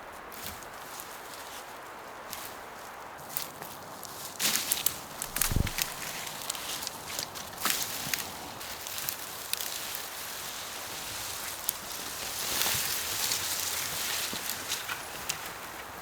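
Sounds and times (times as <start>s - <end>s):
dry leaves rustling and crunching: 0.4s - 16.0s
twigs snapping: 4.4s - 10.0s.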